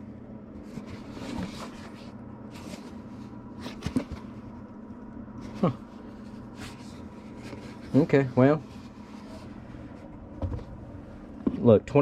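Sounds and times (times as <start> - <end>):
room hum: 0.0 - 12.0
cardboard box rustling and scraping: 0.6 - 4.4, 5.5 - 10.8.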